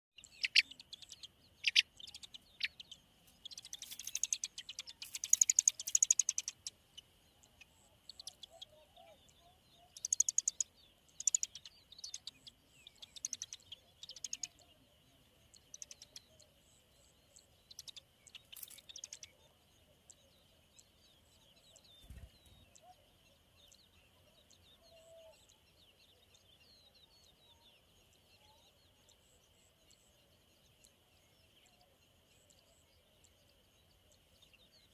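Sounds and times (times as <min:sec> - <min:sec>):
bird chirping: 0:00.2 - 0:34.9.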